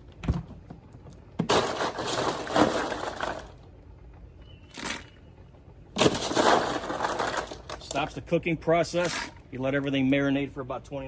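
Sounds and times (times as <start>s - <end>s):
ice clattering into a pot: 1.5s - 3.5s, 6.0s - 8.0s.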